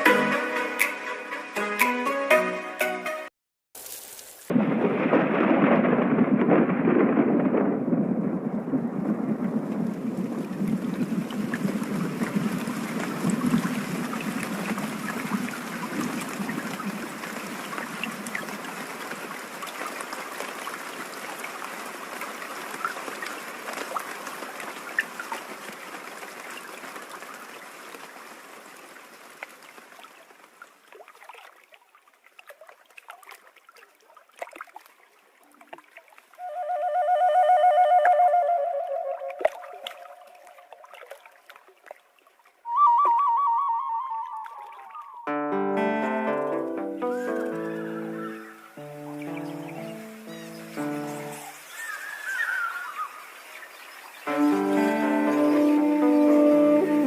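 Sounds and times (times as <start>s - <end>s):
heavy rain: 3.8s - 30.6s, 45.8s - 57.0s.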